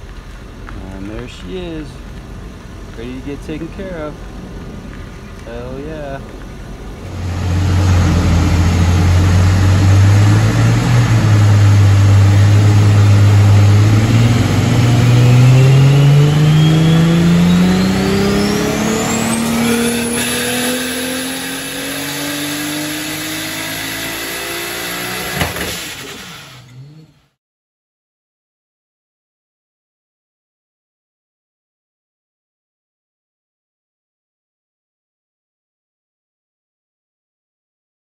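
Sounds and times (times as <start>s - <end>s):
car engine at full throttle: 0.1s - 27.4s
turbo whistle: 15.0s - 20.5s
sharp pop: 25.3s - 26.1s.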